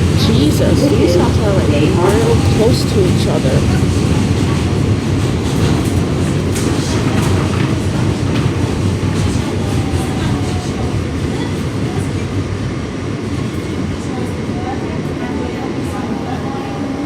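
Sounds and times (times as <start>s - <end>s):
subway train rumble: 0.0s - 17.0s.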